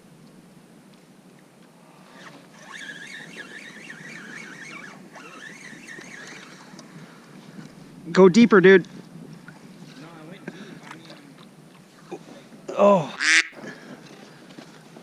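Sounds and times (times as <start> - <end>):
faint open-air background: 0.0 - 15.0
bird warbling: 13.1 - 13.6.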